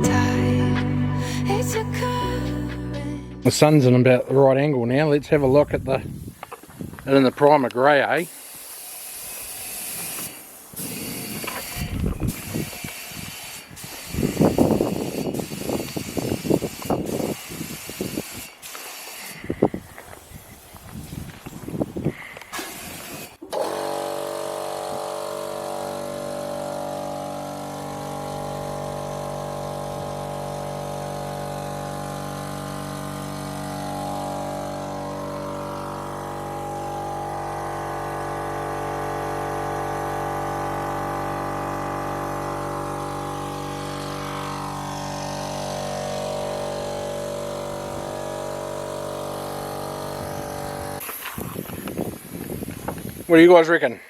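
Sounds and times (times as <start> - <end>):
small engine running: 8.1 - 19.6, 22.4 - 52.0.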